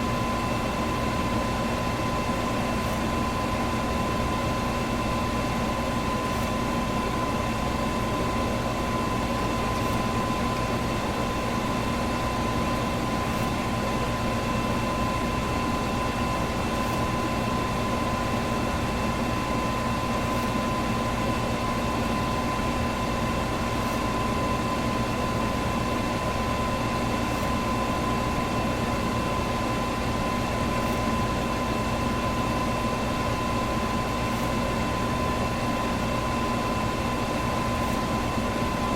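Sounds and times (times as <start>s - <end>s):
electric fan running: 0.0s - 38.9s.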